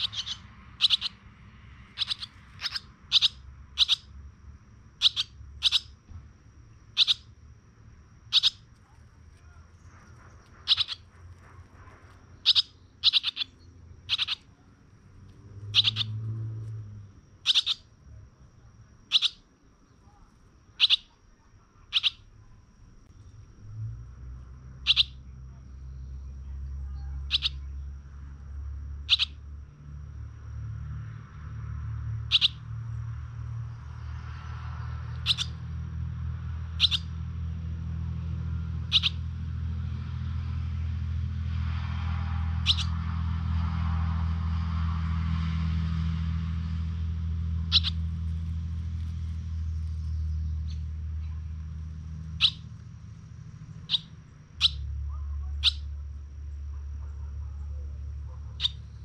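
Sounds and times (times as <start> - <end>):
bird chirping: 0.0 - 4.2, 5.0 - 6.1, 6.8 - 7.4, 8.2 - 23.4, 24.8 - 28.4, 29.0 - 29.7, 32.2 - 32.8, 33.6 - 35.7, 36.7 - 37.2, 38.8 - 39.3, 42.6 - 43.0, 47.5 - 59.0.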